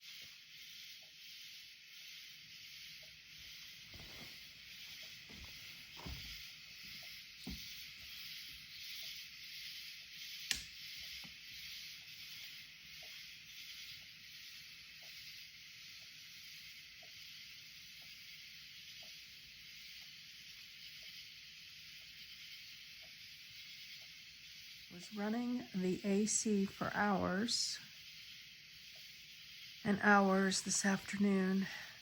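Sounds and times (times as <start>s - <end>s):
night insect chorus: 0.0s - 32.0s
sharp click: 10.5s - 10.7s.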